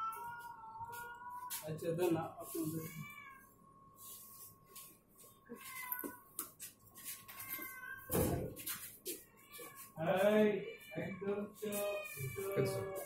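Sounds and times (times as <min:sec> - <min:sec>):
cat meowing: 0:00.0 - 0:01.6, 0:02.6 - 0:03.5, 0:05.4 - 0:06.3, 0:07.3 - 0:08.5, 0:10.6 - 0:13.0
small rustles and clicks: 0:04.6 - 0:10.0.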